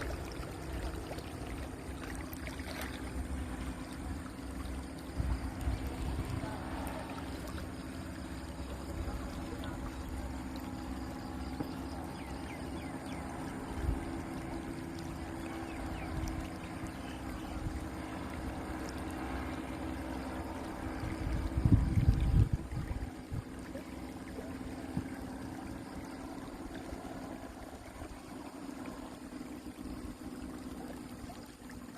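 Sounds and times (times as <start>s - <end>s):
distant paramotor engines droning: 0.0s - 31.9s
wind buffeting microphone: 5.0s - 6.8s, 20.6s - 23.7s.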